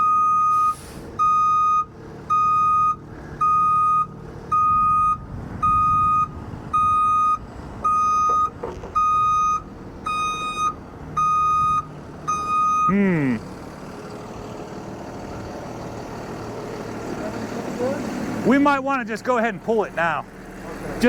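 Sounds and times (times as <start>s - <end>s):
truck backup alarm beeping: 0.0s - 13.8s
truck engine running: 0.0s - 21.0s.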